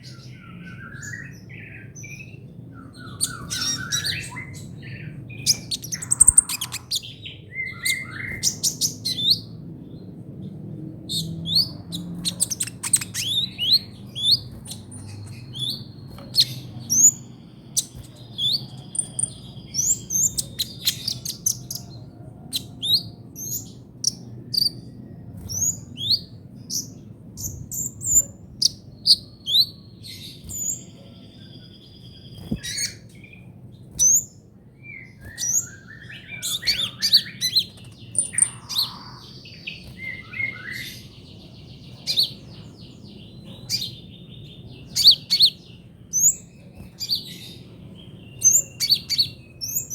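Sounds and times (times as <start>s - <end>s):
faint low hum: 0.0s - 49.9s
sunbird singing high chirps: 0.0s - 49.9s.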